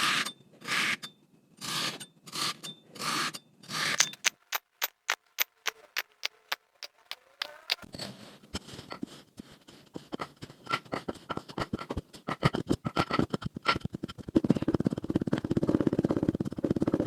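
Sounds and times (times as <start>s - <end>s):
kinetic sand crunching: 4.0s - 7.8s.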